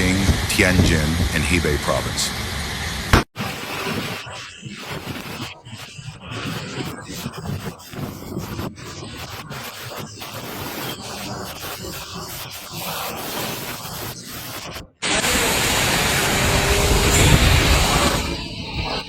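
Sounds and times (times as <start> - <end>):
storm wind gusting on microphone: 0.0 - 3.1, 15.0 - 19.0
heavy low rumble: 0.0 - 3.2.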